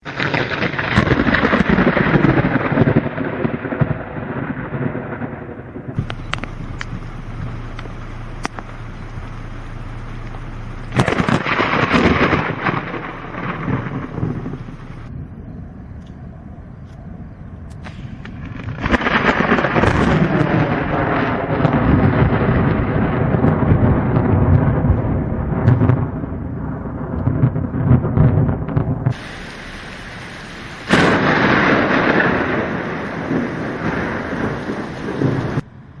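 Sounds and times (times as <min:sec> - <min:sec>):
rain: 0:00.0 - 0:36.0
thunder rumbling: 0:00.0 - 0:36.0
sharp ticks: 0:06.0 - 0:11.5.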